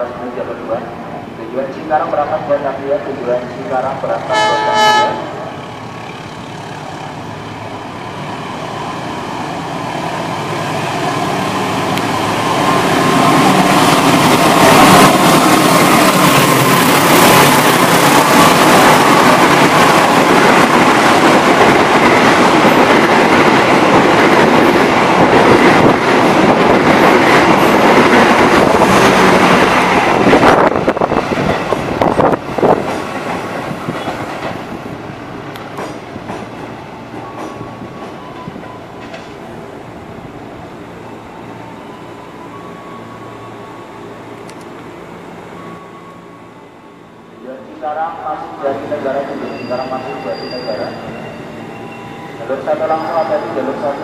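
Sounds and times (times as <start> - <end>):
train rumble: 0.0 - 40.4
train wheels clattering: 35.6 - 39.4.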